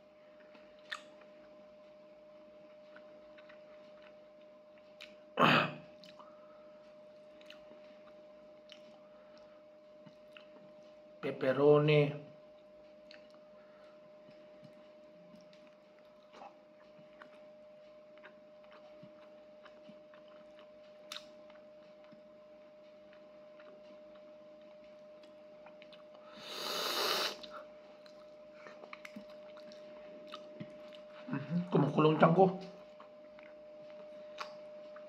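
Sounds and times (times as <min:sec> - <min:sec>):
faint steady hum: 0:00.0 - 0:35.0
person chewing quietly: 0:00.2 - 0:11.1, 0:12.5 - 0:31.8, 0:32.6 - 0:35.0
loud hissing burst: 0:26.4 - 0:27.4.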